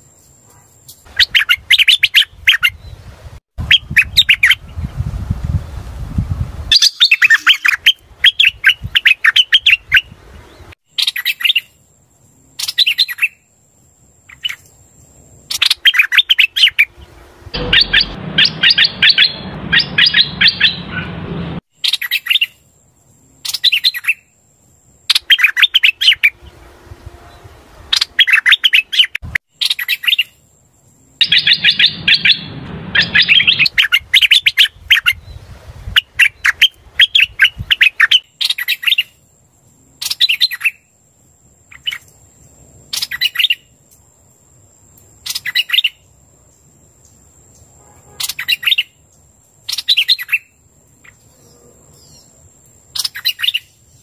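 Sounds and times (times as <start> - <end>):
bird rapid sharp chirping: 6.7 - 10.1, 17.6 - 22.5, 31.2 - 34.7.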